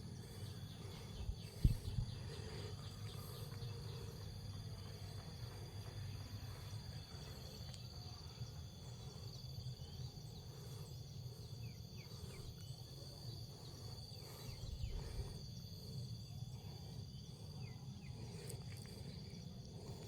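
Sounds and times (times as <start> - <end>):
insect trill: 0.0 - 20.0.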